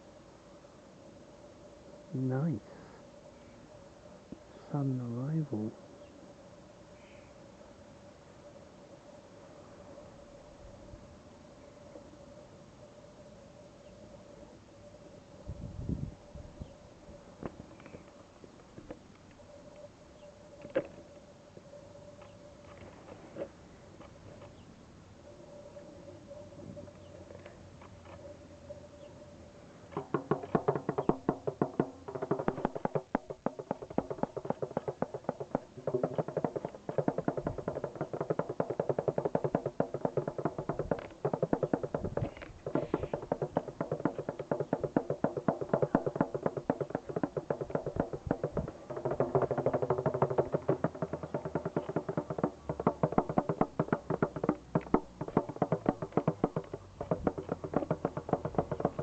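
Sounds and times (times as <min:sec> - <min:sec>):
hand drum played fast: 0:30.1 - 0:59.0.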